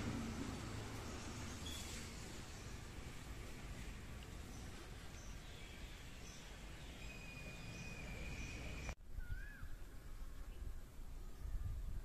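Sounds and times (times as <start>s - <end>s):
high bird chirps: 4.5s - 9.7s
whistled bird call: 5.6s - 9.8s.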